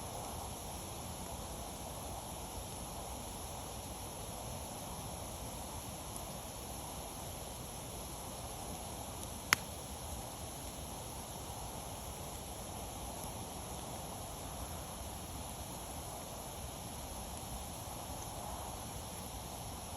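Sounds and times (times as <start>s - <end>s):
wood fire hissing: 0.0s - 19.9s
burning wood popping: 9.2s - 9.8s.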